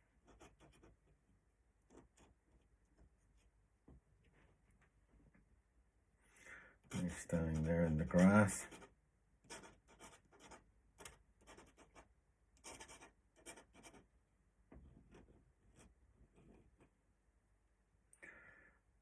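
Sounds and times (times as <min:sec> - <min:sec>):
pen scratching on paper: 0:00.2 - 0:01.0, 0:06.9 - 0:14.0.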